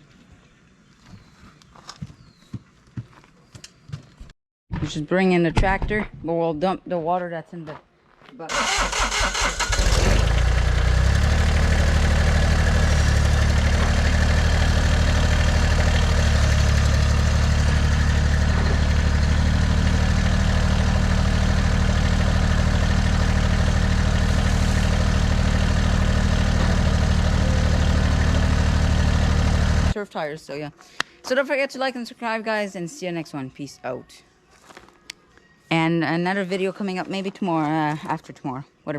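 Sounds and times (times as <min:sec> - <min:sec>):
diesel tractor engine running: 0:08.5 - 0:30.0.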